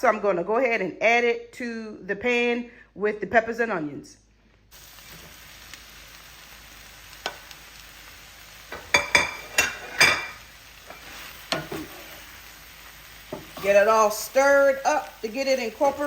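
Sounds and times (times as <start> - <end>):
food sizzling in a frying pan: 4.7 - 16.0
utensil scraping and knocking pan: 8.7 - 12.2.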